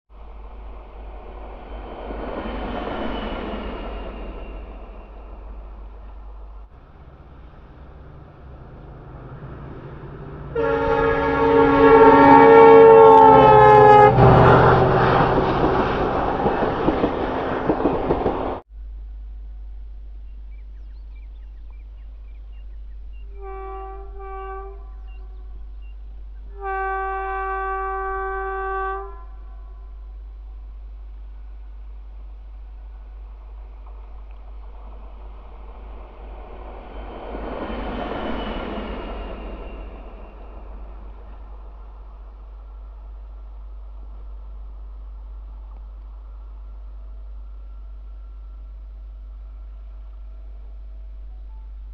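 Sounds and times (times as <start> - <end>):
locomotive low rumble: 0.1 - 51.9
locomotive air horn chord: 6.7 - 15.5, 23.3 - 25.6, 26.5 - 30.2.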